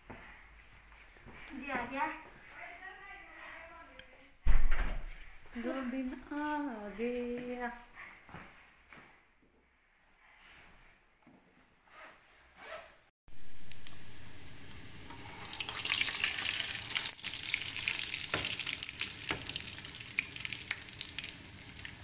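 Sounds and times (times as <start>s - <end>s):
food sizzling in hot oil: 13.3s - 22.0s.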